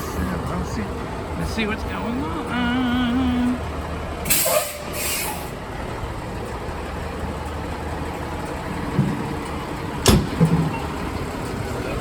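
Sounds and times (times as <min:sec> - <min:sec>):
engine idling: 0:00.0 - 0:12.0
street traffic: 0:00.0 - 0:12.0
air brakes hissing: 0:04.2 - 0:05.6.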